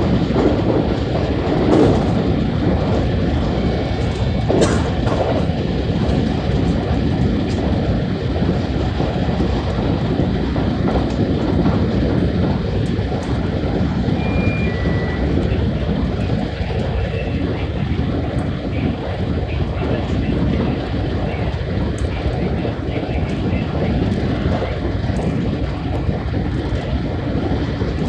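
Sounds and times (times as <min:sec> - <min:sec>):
train wheels rumbling on rails: 0:00.0 - 0:28.0
brief high tones: 0:14.2 - 0:15.3.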